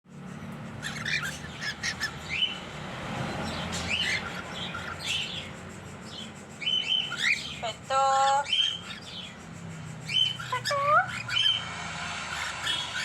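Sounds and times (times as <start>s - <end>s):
cockatiels chirping: 0.6s - 13.0s
rising whistled bird calls: 10.1s - 13.0s.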